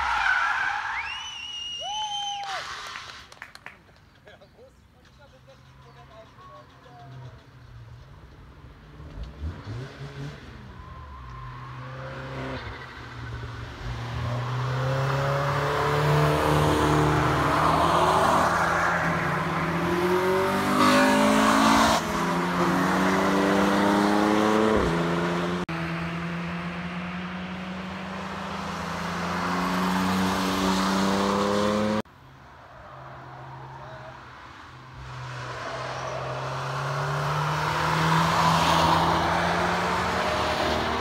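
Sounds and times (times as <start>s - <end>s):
race car passing at speed: 13.8s - 32.0s, 34.9s - 41.0s.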